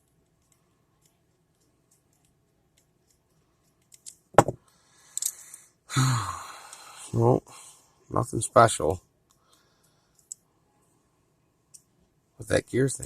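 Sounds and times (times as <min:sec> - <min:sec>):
small plastic clicks: 0:00.0 - 0:04.3.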